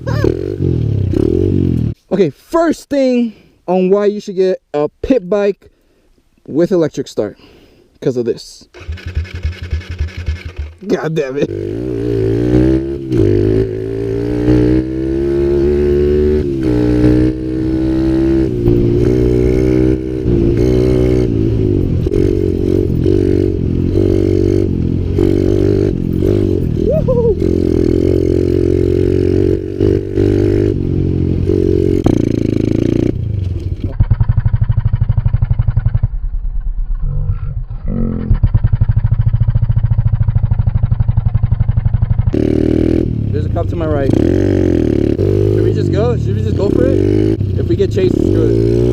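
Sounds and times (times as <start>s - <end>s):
small motorbike engine revving: 8.7s - 36.1s, 42.3s - 43.4s, 44.0s - 48.9s.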